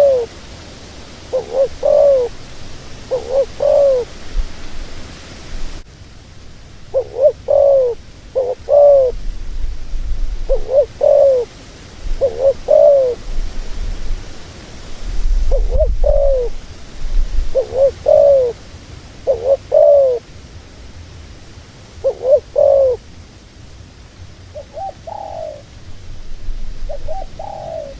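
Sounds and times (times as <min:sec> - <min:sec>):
dove cooing: 0:00.0 - 0:00.4, 0:01.2 - 0:04.4, 0:06.9 - 0:09.3, 0:10.4 - 0:13.7, 0:15.3 - 0:18.6, 0:19.2 - 0:20.3, 0:22.0 - 0:23.0, 0:24.5 - 0:25.7, 0:26.8 - 0:27.9.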